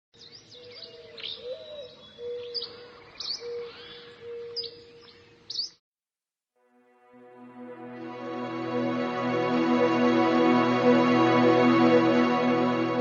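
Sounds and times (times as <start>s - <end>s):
birds chirping and whistling: 0.2s - 5.8s.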